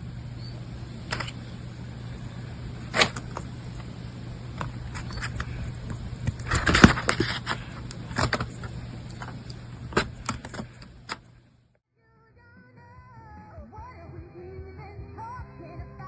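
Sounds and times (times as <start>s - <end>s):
rustling: 0.0s - 11.5s
low hum: 0.0s - 11.8s
handling clicks and scrapes: 0.3s - 11.4s.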